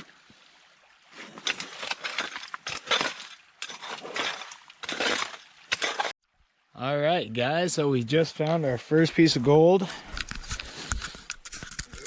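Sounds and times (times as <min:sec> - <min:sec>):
gravel scraping in a pan: 0:01.2 - 0:06.1.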